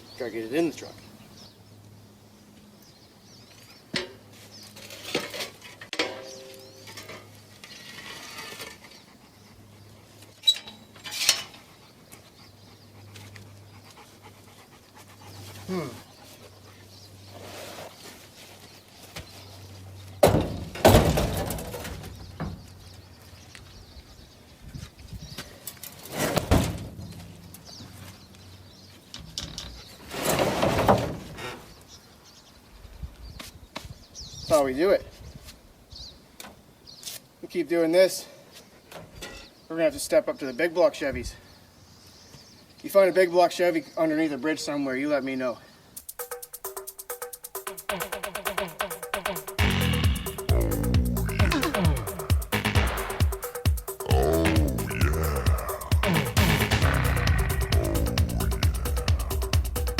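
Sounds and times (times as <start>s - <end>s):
engine block scraping on truck bed: 30.0s - 31.6s.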